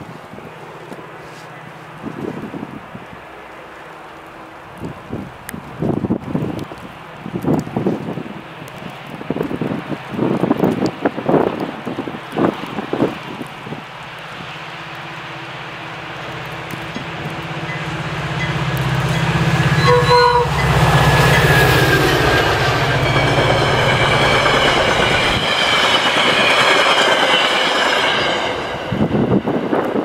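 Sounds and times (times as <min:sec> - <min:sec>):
diesel locomotive engine drone: 0:00.0 - 0:30.0
wheel and rail rush: 0:00.0 - 0:30.0
rail-joint clicks: 0:16.3 - 0:30.0
train horn note: 0:16.5 - 0:25.4.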